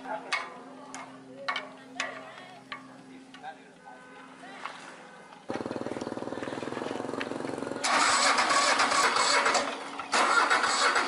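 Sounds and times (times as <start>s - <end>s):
tractor engine starting and running: 5.5s - 11.0s.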